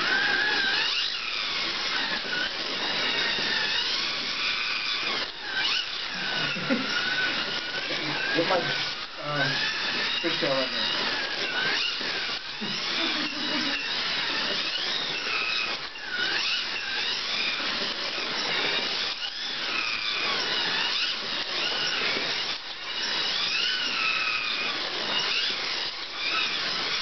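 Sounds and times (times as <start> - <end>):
slot car motors whining: 0.0 - 27.0.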